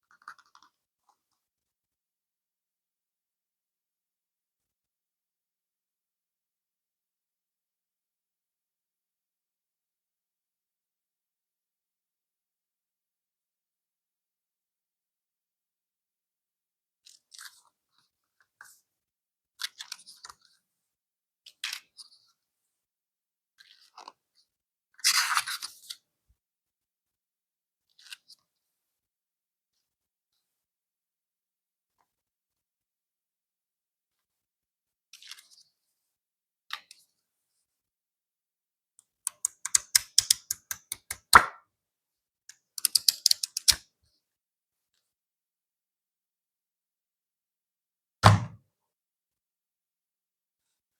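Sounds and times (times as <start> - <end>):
packaging clicks and taps: 39.3 - 41.5, 42.5 - 43.8
loud knock: 48.2 - 48.6.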